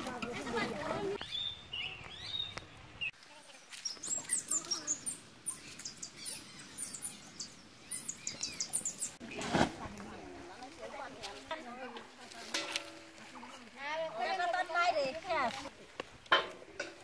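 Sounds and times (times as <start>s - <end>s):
small birds chirping: 1.2s - 9.3s.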